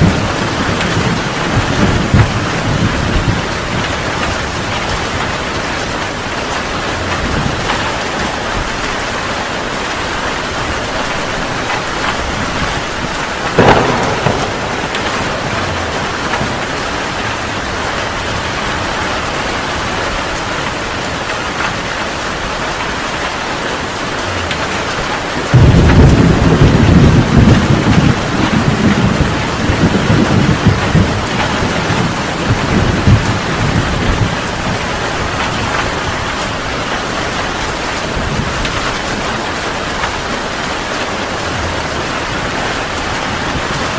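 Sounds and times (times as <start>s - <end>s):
thunder crack: 0.0s - 5.3s, 11.5s - 18.9s, 25.5s - 36.7s
low thunder rumble: 0.0s - 8.8s, 10.3s - 20.4s, 25.2s - 40.3s
heavy rain: 0.0s - 43.9s.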